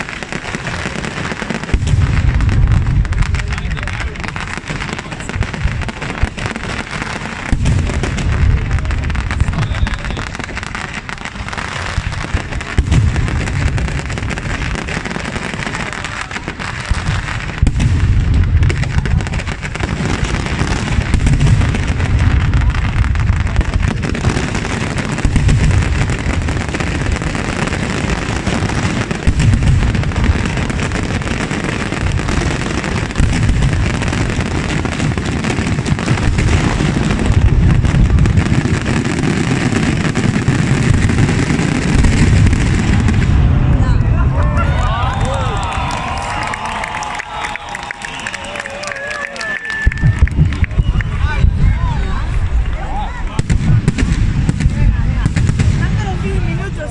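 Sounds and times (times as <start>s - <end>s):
heavy low firework booms: 0.0s - 46.6s, 49.8s - 56.9s
fireworks bangs and crackles: 0.0s - 56.9s.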